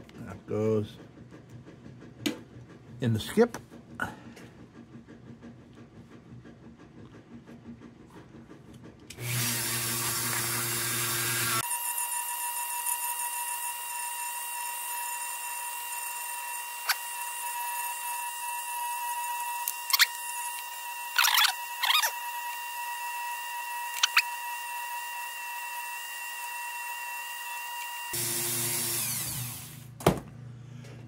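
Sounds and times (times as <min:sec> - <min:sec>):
high-speed power tool whining: 0:09.1 - 0:29.9.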